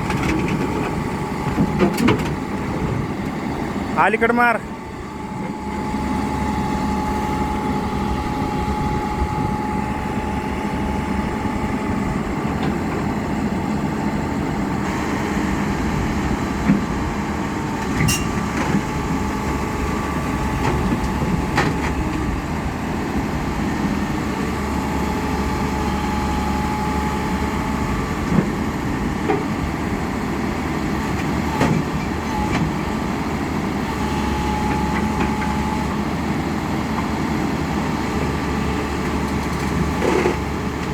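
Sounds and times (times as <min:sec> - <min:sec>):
diesel engine running: 0:00.0 - 0:40.9
whine: 0:05.1 - 0:12.7.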